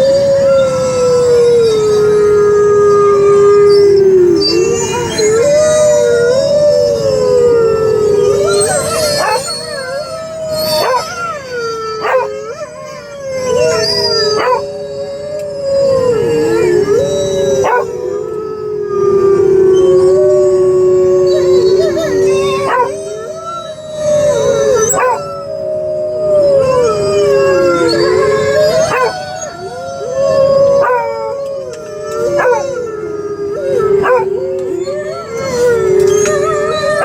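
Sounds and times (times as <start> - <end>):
dog howling: 0.0 - 37.0
dogs howling on radio: 0.0 - 37.0
dog yelps: 8.3 - 14.7, 16.7 - 18.0, 21.8 - 25.5, 27.8 - 32.9, 33.8 - 37.0.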